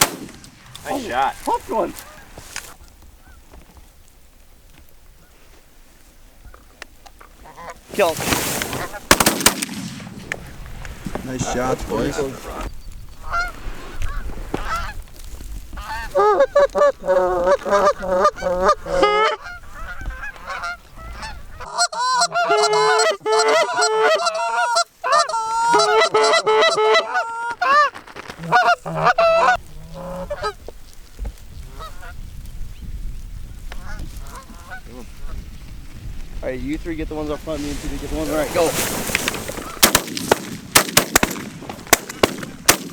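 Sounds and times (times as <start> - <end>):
geese honking: 0.0 - 3.4, 7.4 - 9.6, 11.2 - 15.0, 15.8 - 30.6, 37.6 - 40.1.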